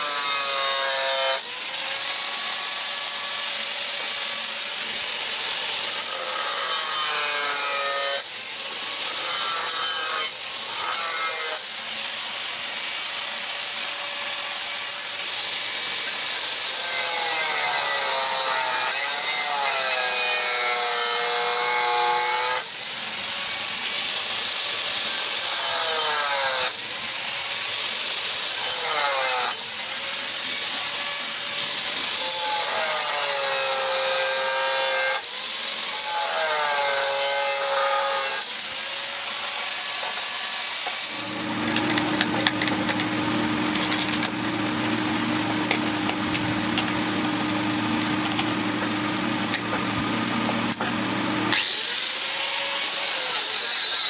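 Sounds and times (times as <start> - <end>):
power grinder on steel: 0.0 - 54.0
motor hum: 41.1 - 51.9.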